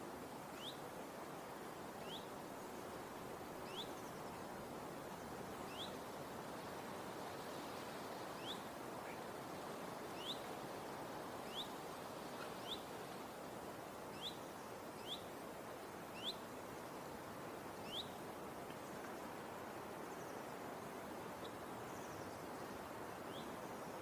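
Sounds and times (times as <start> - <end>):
outdoor ambient hiss: 0.0 - 24.0
bird chirping: 5.7 - 5.9, 10.2 - 10.4, 12.4 - 12.8, 14.2 - 14.4, 15.0 - 15.3, 17.9 - 18.2.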